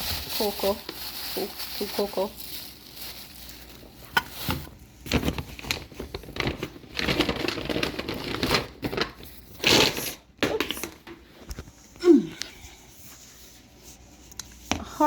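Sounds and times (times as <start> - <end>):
plastic bags rustling: 0.0 - 11.7
items clicking and knocking: 4.2 - 11.7.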